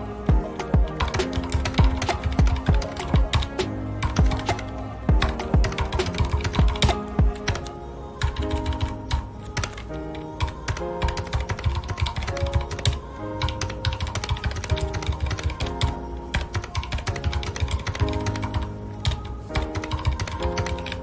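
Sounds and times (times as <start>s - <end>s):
soft background music: 0.0s - 21.0s
mechanical keyboard typing: 10.4s - 21.0s.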